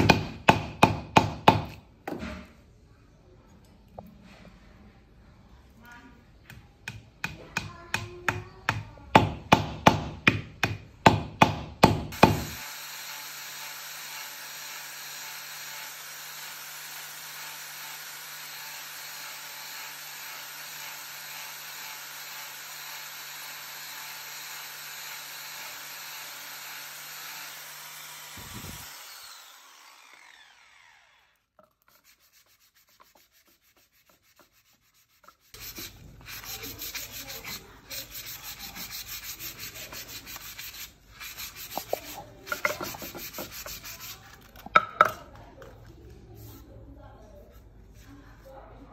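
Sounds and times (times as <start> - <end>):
power sander running on wood: 21.2 - 31.3.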